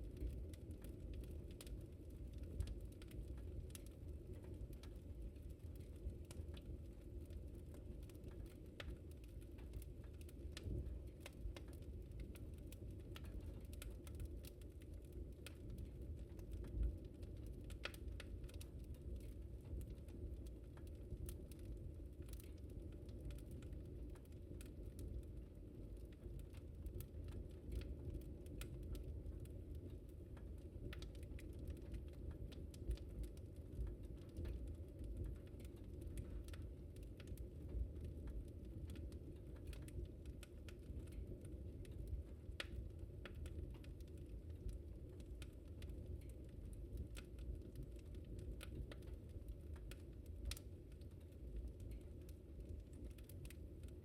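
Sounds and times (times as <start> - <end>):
fire low rumble: 0.0 - 54.0
wood fire crackling and popping: 0.0 - 54.0.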